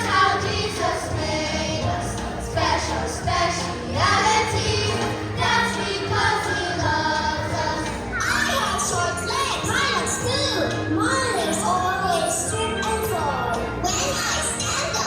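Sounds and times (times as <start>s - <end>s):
children singing: 0.0s - 9.0s
backing music: 0.0s - 15.0s.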